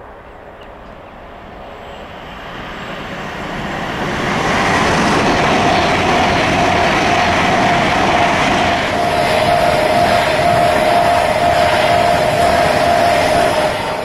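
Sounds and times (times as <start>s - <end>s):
train rushing past: 0.0s - 14.0s
faint steady whine: 8.9s - 14.0s.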